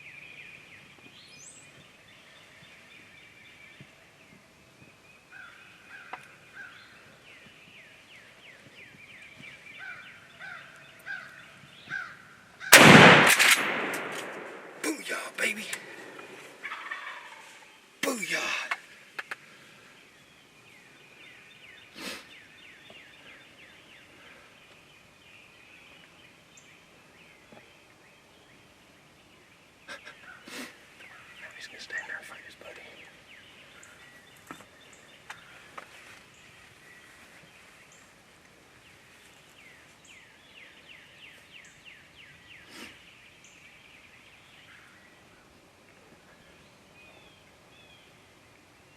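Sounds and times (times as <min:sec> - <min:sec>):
songbirds chirping: 0:00.0 - 0:48.9
shotgun blast with echo: 0:12.7 - 0:14.8.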